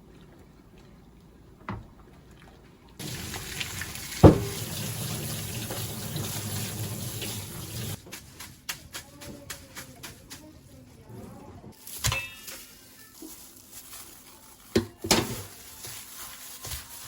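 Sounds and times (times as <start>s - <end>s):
tap water running into sink: 3.0s - 8.0s.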